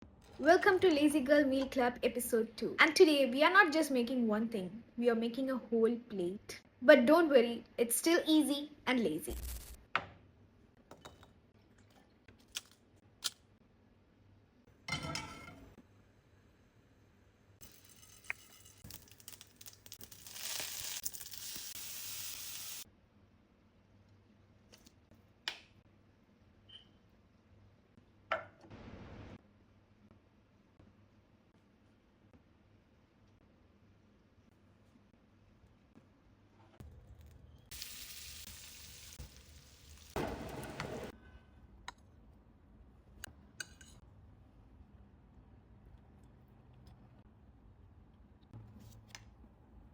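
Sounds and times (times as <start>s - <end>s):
hot oil sizzling in a pan: 17.6s - 22.8s, 37.7s - 41.1s.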